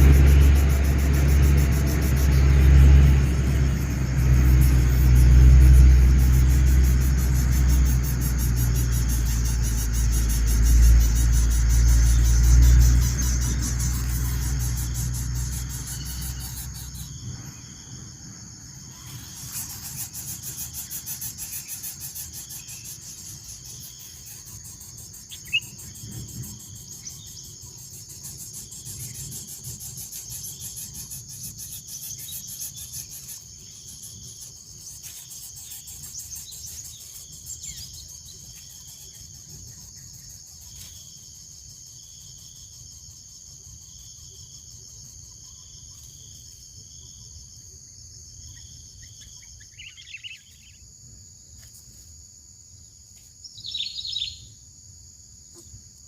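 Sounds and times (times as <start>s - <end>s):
rapid pulsing buzz: 0.0s - 17.8s
insects chirring: 0.0s - 56.0s.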